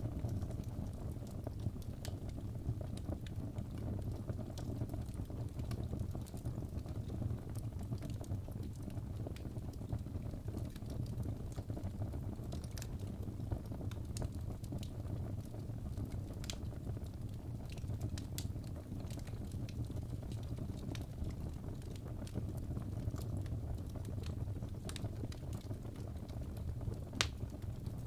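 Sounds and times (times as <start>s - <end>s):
fire crackling: 0.0s - 28.0s
sharp pops of fire: 27.2s - 27.4s.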